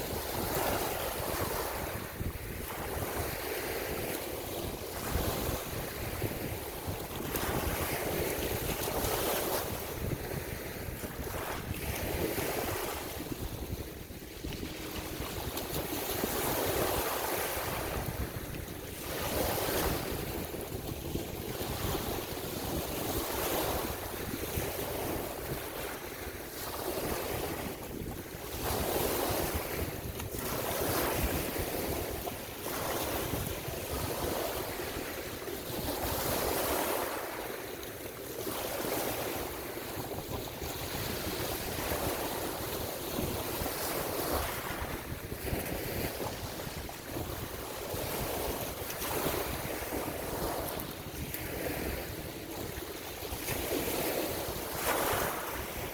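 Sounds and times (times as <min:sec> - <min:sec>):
ocean waves washing in: 0:00.0 - 0:55.9
wind buffeting microphone: 0:00.0 - 0:55.9.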